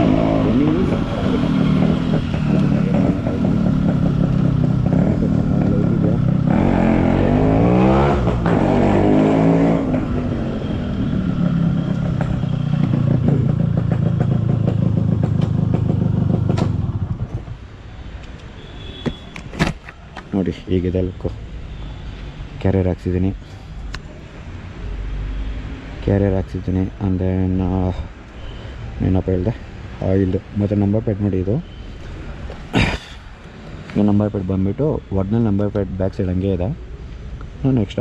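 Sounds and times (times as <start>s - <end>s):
two-stroke motorcycle engine: 0.0s - 7.5s, 9.7s - 17.4s.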